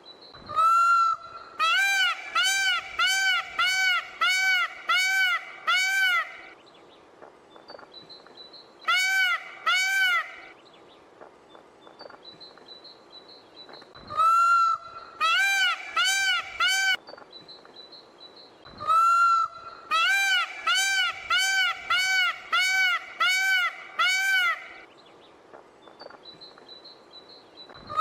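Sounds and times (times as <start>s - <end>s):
peafowl calling: 0.4s - 6.6s, 8.9s - 10.6s, 14.0s - 17.0s, 18.7s - 24.9s.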